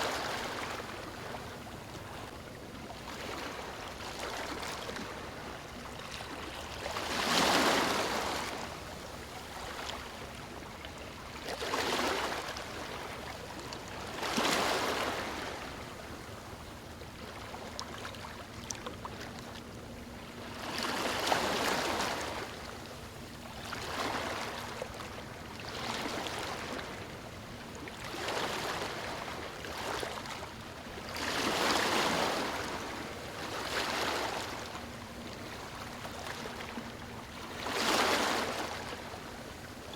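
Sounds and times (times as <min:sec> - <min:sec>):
waves breaking on stony shore: 0:37.6 - 0:38.8.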